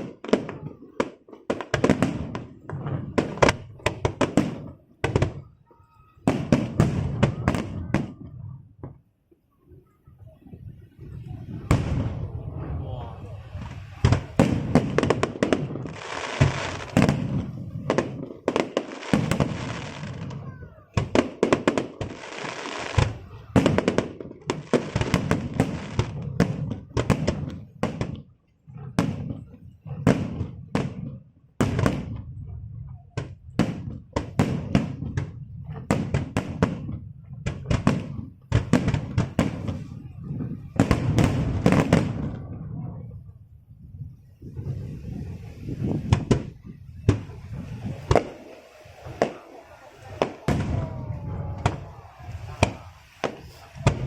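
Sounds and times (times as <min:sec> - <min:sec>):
fireworks crackling: 0:00.0 - 0:09.1, 0:09.8 - 0:54.0
fireworks bangs and pops: 0:00.0 - 0:54.0.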